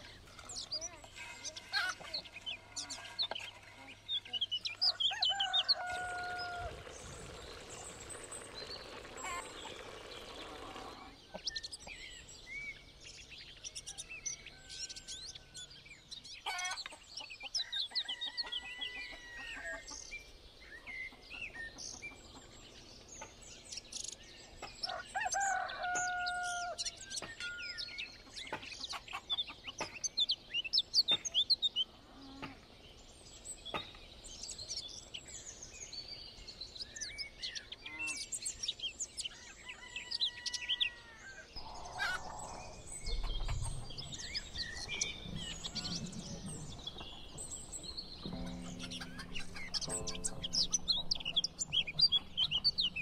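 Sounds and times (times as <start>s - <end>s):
small birds chirping: 0.0s - 53.0s
rooster crowing: 4.9s - 6.8s, 24.9s - 26.8s.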